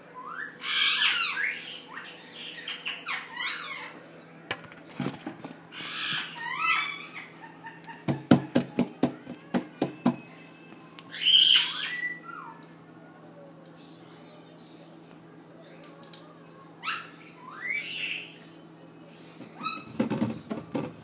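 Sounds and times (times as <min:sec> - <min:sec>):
bird squawking: 0:00.2 - 0:04.0, 0:05.8 - 0:08.0, 0:11.1 - 0:12.6, 0:16.8 - 0:18.5.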